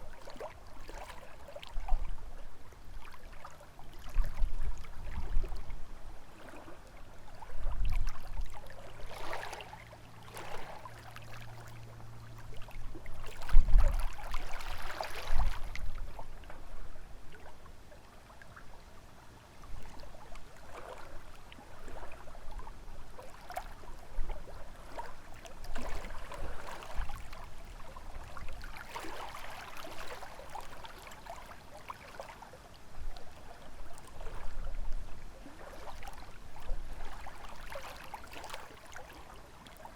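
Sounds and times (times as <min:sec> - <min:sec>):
lake waves lapping on shore: 0:00.0 - 0:19.0, 0:19.6 - 0:39.9
wind rumbling on microphone: 0:04.0 - 0:06.2, 0:07.3 - 0:08.6, 0:12.8 - 0:17.2.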